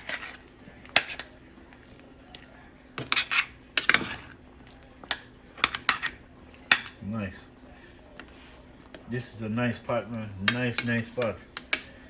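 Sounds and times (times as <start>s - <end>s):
metal utensil scraping a pot: 0.0s - 1.3s, 3.0s - 4.4s, 5.1s - 6.9s.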